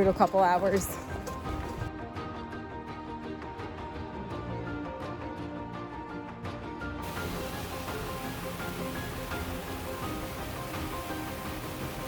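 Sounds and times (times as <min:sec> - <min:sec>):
background music held notes: 0:00.0 - 0:12.0
steady hiss: 0:07.0 - 0:12.0.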